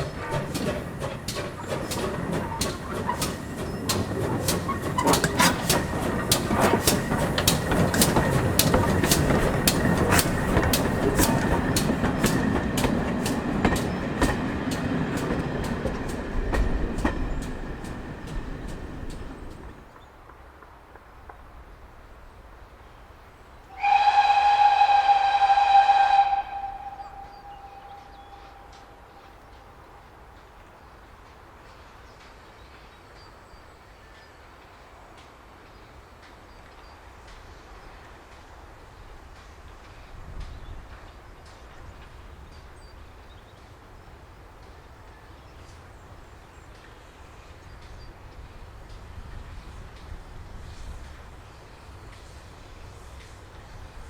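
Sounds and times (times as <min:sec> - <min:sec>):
steam whistle blast: 0:23.7 - 0:29.2.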